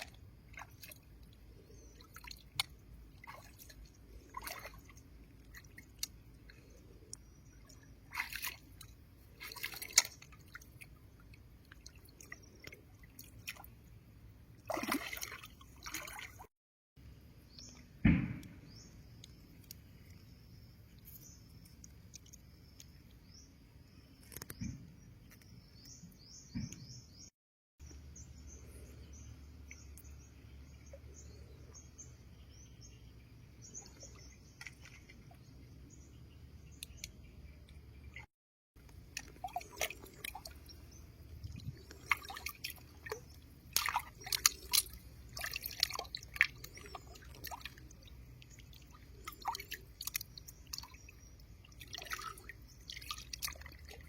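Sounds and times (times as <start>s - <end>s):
small birds chirping: 0.0s - 13.9s, 18.6s - 38.3s, 39.0s - 54.0s
water splashes and drips: 0.0s - 16.5s, 33.6s - 35.7s, 36.8s - 54.0s.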